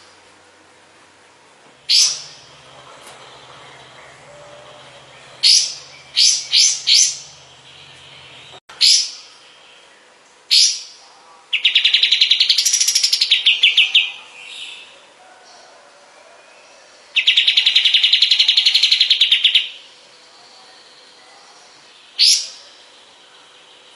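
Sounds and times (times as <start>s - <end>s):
bird chirping: 1.8s - 10.9s, 17.1s - 23.9s
bird trill: 1.9s - 9.3s.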